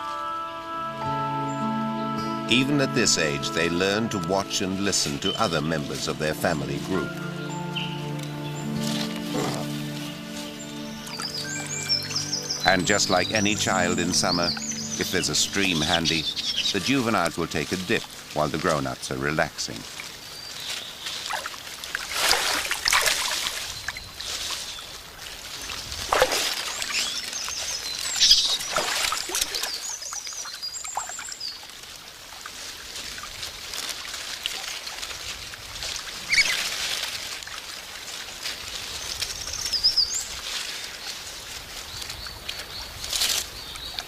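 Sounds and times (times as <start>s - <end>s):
stream running: 0.0s - 44.0s
high bird chirps: 7.1s - 18.4s, 26.6s - 31.5s
monkeys splashing in water: 19.8s - 44.0s.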